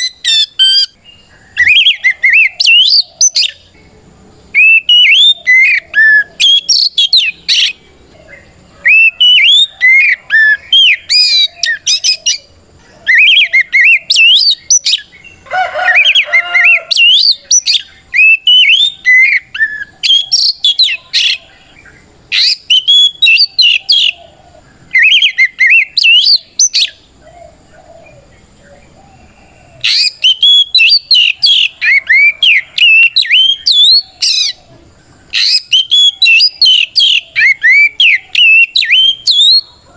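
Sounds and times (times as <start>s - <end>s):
songbird whistled song: 0.0s - 39.9s
rasping bird call: 4.5s - 28.3s.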